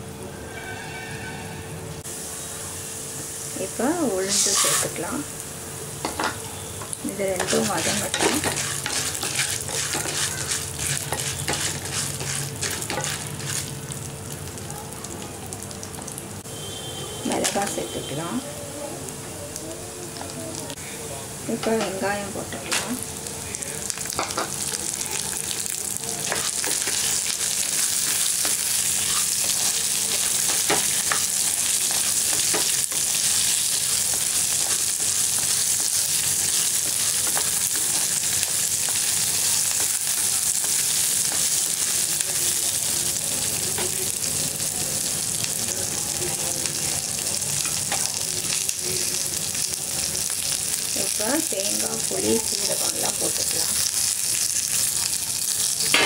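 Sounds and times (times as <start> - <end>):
food sizzling in hot oil: 2.0 - 56.0
spatula scraping a pan: 4.3 - 5.0, 7.2 - 13.7, 26.2 - 41.5.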